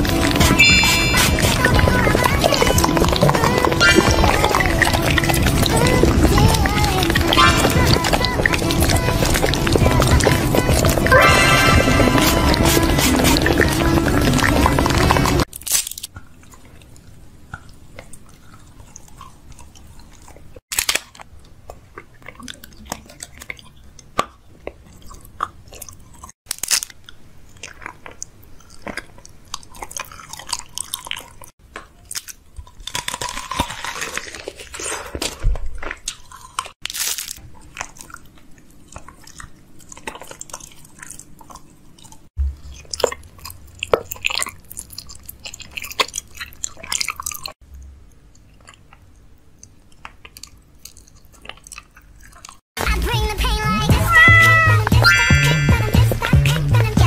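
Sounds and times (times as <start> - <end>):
person chewing and crunching food: 0.0 - 52.8.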